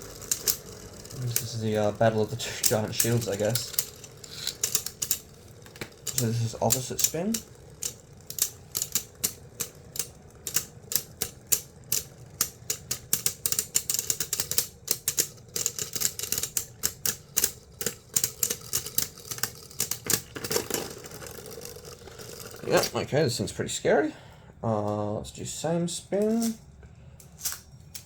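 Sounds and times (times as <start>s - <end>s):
spinning tops clicking as they collide: 0.0s - 23.0s.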